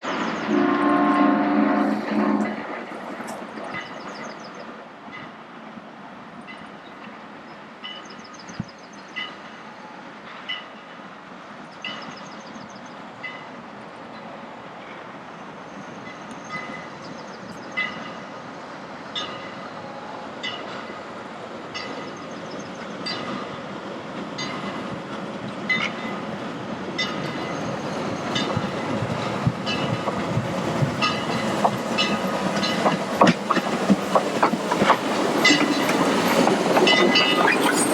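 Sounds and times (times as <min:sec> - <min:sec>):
steam locomotive passing: 0:00.0 - 0:37.9
wheels clicking over rail joints: 0:28.2 - 0:37.9.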